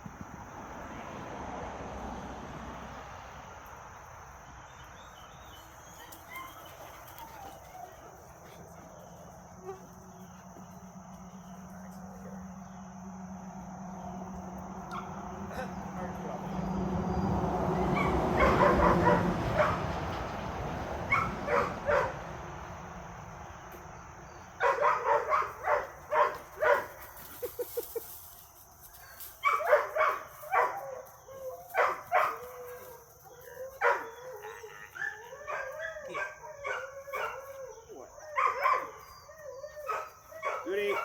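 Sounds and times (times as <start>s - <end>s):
dogs yipping and howling: 5.4s - 13.3s, 17.1s - 20.2s, 21.0s - 22.2s, 24.3s - 28.0s, 29.0s - 41.0s
young dogs barking: 5.7s - 12.8s, 14.7s - 16.6s, 17.4s - 20.2s, 21.0s - 22.4s, 24.3s - 28.1s, 29.0s - 41.0s.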